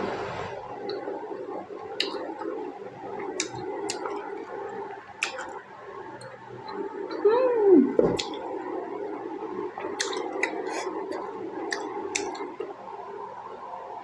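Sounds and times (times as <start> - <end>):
mouth clicks and smacks: 2.0 - 2.6, 3.2 - 4.3, 5.2 - 5.6, 8.0 - 8.4, 9.8 - 12.7
wet chewing: 3.2 - 4.3, 5.2 - 5.6, 9.8 - 12.6.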